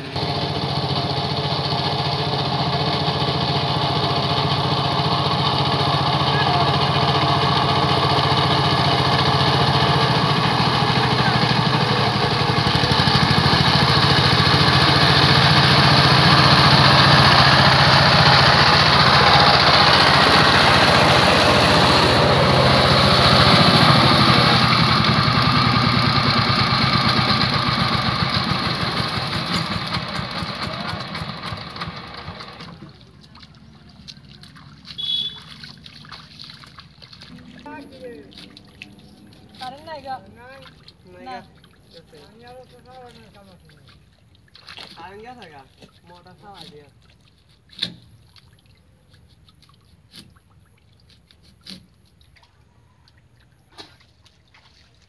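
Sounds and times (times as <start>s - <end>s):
power tiller engine running: 0.0s - 32.9s.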